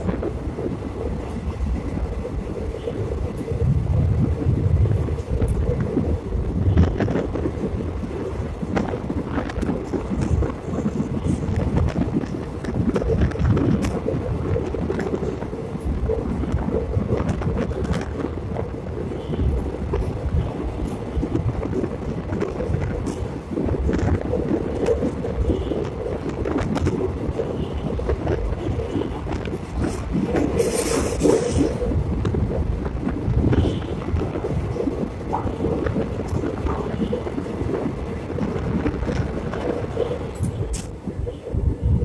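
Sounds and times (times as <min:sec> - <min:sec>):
passenger train rumbling: 0:00.0 - 0:42.0
train wheels scraping and clicking: 0:14.6 - 0:34.7.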